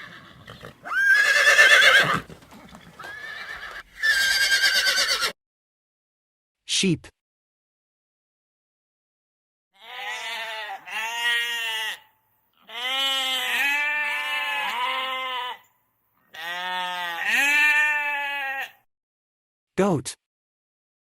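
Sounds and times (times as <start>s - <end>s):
sheep bleating: 9.8s - 15.7s, 16.3s - 18.9s.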